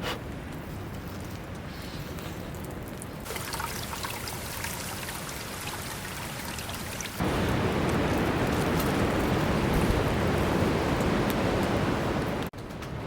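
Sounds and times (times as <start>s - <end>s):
water trickling: 2.8s - 10.4s.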